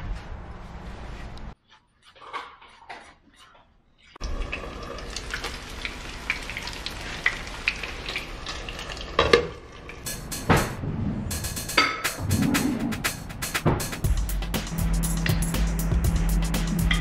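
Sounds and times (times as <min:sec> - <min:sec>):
fish sizzling in hot oil: 0:04.2 - 0:10.0.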